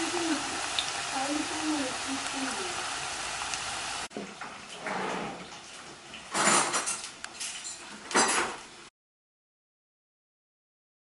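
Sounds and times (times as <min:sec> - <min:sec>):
steady hiss: 0:00.0 - 0:04.1
dishes and cutlery clattering: 0:06.2 - 0:08.6.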